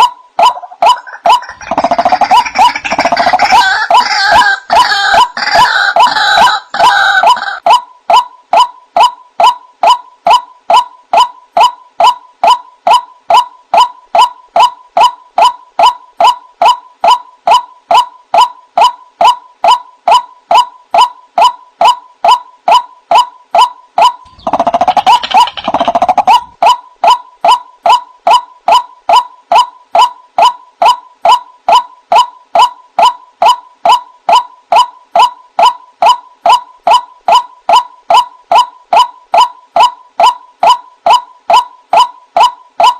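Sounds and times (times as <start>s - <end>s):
harsh croaking bird calls: 0.4s - 7.6s, 24.0s - 26.8s.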